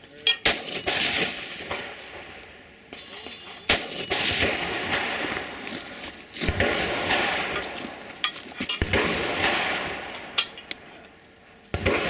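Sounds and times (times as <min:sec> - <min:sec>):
rifle gunshots with echo: 0:00.4 - 0:02.1, 0:03.7 - 0:05.6, 0:06.4 - 0:07.8, 0:08.8 - 0:10.4, 0:11.7 - 0:12.0.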